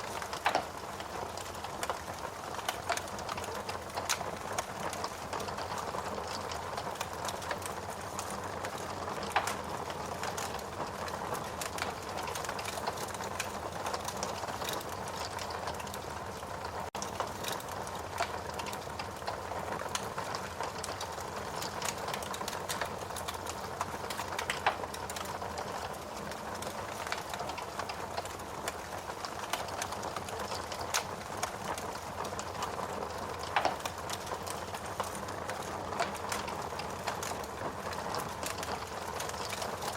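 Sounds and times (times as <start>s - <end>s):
loud fire pops: 0.0s - 15.9s, 17.0s - 19.3s, 19.9s - 39.9s
fire crackling in fireplace: 0.0s - 39.9s.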